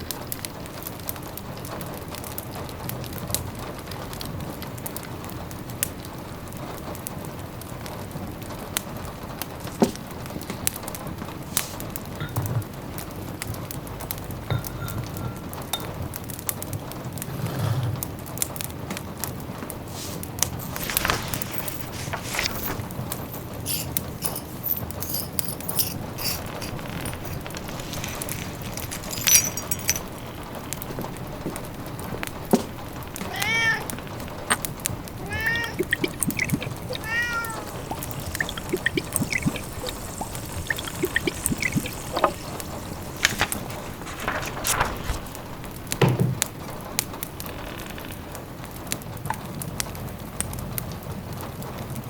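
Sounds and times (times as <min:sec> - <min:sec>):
rain pattering: 0:00.0 - 0:14.5, 0:26.1 - 0:52.0
wood fire crackling: 0:18.4 - 0:49.1
rain hissing: 0:19.8 - 0:25.2, 0:26.0 - 0:46.0
cat meowing: 0:33.2 - 0:34.1, 0:35.2 - 0:40.6.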